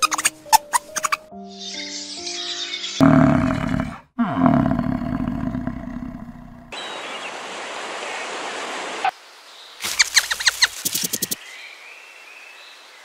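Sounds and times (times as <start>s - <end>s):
bison bellowing: 3.0s - 6.8s.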